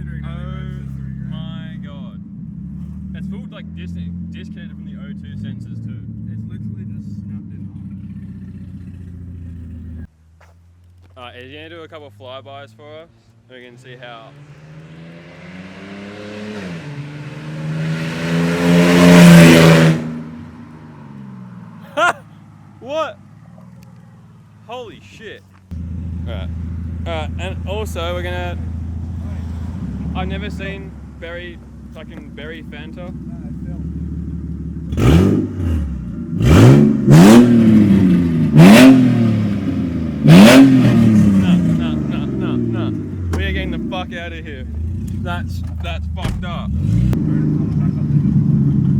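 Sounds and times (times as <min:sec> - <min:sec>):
car engine accelerating past: 0:13.8 - 0:21.9, 0:25.8 - 0:32.3, 0:33.0 - 0:44.1, 0:46.6 - 0:48.9.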